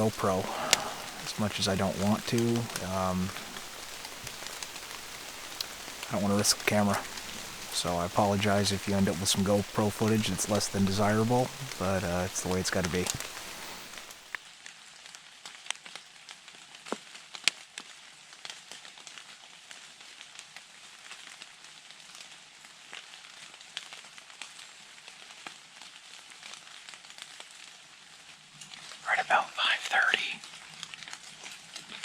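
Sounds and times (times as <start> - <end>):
sharp ticks of raindrops: 0.0 - 32.0
steady rain hiss: 0.0 - 32.0.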